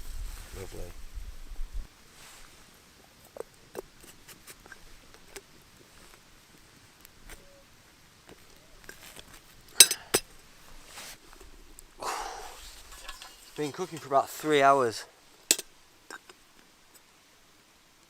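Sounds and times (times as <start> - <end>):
cooking pot and utensils clinking: 9.8 - 10.3, 12.8 - 14.1.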